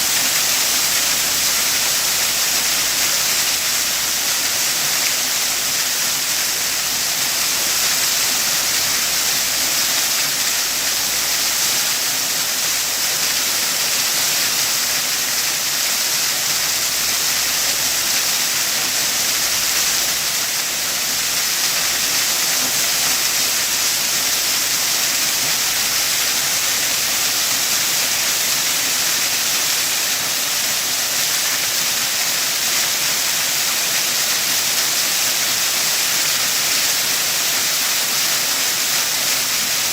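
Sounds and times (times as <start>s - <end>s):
waterfall: 0.0s - 39.9s.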